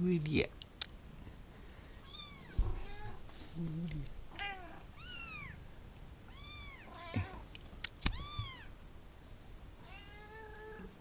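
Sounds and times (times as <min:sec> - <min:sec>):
cats meowing: 0:02.0 - 0:05.7, 0:06.3 - 0:08.8, 0:09.8 - 0:11.0.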